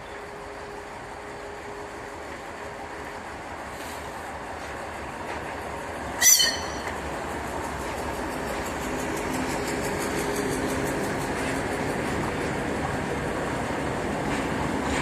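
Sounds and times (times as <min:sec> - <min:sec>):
diesel locomotive engine running: 0:00.0 - 0:15.0
sharp high-pitched squeal: 0:06.2 - 0:06.9.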